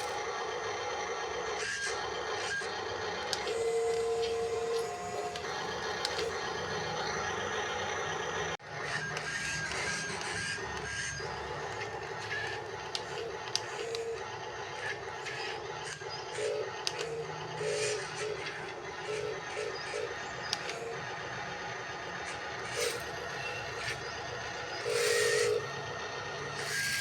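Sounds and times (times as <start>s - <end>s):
small electric motors whirring: 0.0s - 27.0s.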